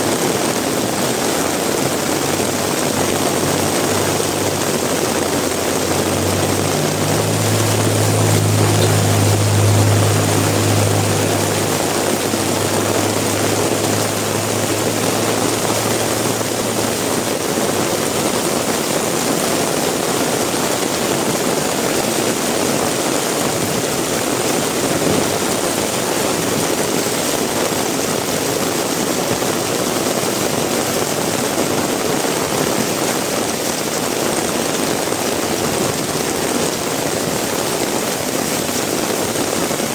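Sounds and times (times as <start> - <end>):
heavy rain falling: 0.0 - 39.9
vehicle engine hum passing: 0.5 - 27.7.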